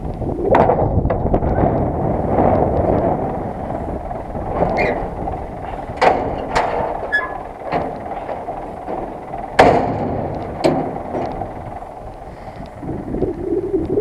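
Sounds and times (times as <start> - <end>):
tractor engine rumbling: 0.0 - 14.0
metallic knocks and clanks: 2.7 - 12.2.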